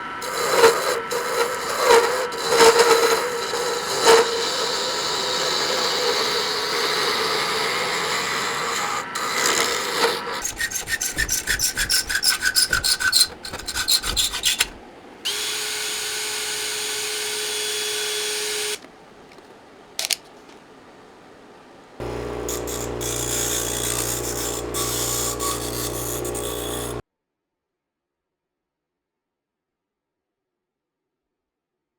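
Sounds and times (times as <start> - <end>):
sawing or rasping strokes: 0.1 - 18.9, 22.0 - 27.0
scraping and rubbing on wood: 0.2 - 20.6, 22.0 - 27.0
steady hum: 22.0 - 27.0.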